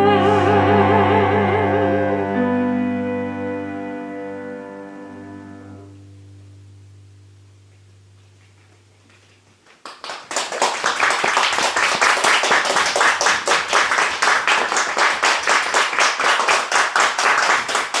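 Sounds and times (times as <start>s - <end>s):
audience applause: 9.8s - 18.0s.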